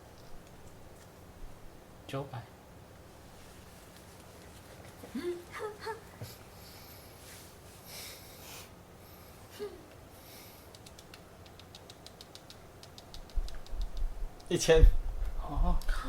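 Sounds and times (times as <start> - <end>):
small clicks: 10.7 - 14.5.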